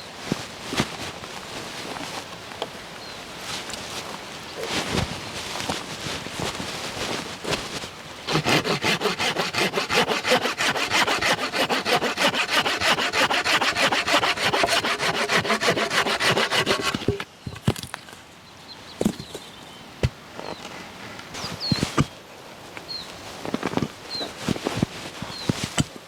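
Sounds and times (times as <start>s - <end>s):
hand saw cutting wood: 8.3s - 17.2s.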